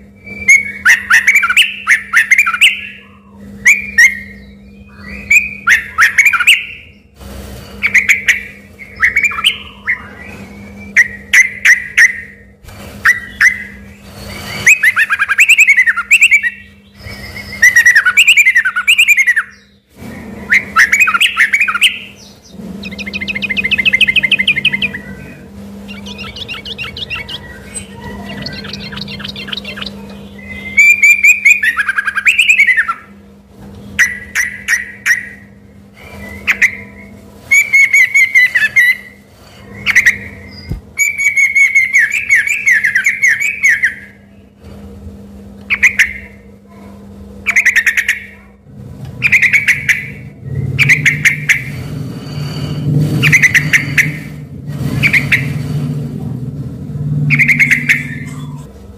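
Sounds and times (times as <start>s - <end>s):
bird singing warbling phrases: 0.0s - 7.1s, 7.8s - 33.2s, 33.8s - 44.6s, 45.7s - 46.5s, 47.4s - 52.0s, 53.2s - 55.6s, 57.2s - 58.8s
faint steady hum: 0.0s - 58.9s
low rumble: 50.1s - 58.9s.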